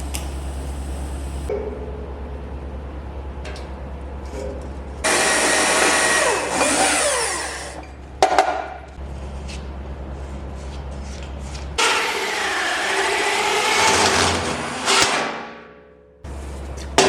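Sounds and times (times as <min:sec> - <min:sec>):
high-speed power tool: 0:05.0 - 0:07.8, 0:11.8 - 0:15.1.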